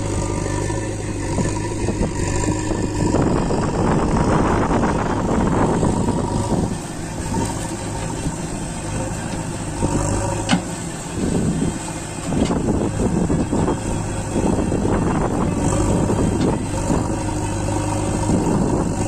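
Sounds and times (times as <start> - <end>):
diesel tractor engine running: 0.0 - 19.0.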